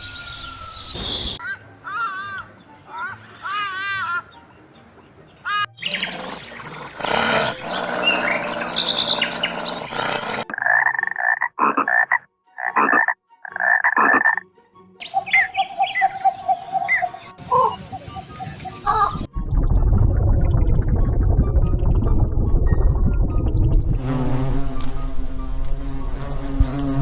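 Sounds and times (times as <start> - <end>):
pitched animal calls: 5.5 - 14.4
animal chirps: 5.6 - 11.8.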